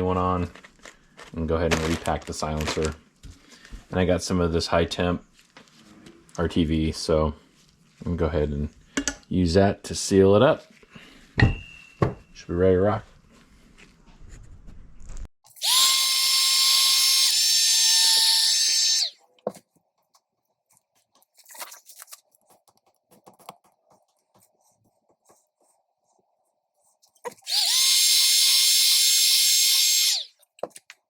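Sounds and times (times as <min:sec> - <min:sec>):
power drill whining: 0:15.6 - 0:19.2, 0:27.4 - 0:30.3.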